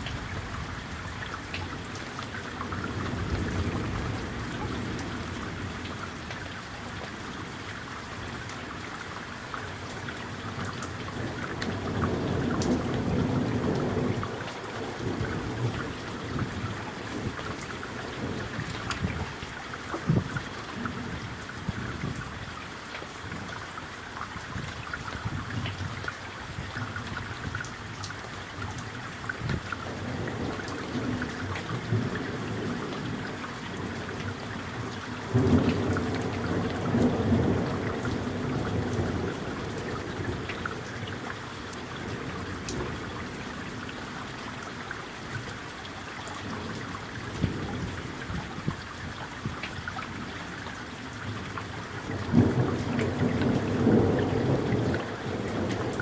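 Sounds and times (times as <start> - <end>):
rain falling: 0.0 - 56.0
thunder rumbling: 52.1 - 56.0.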